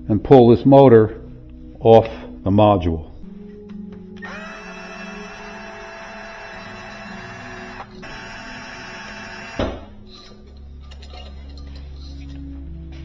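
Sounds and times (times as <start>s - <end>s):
power screwdriver whine: 4.2s - 9.8s.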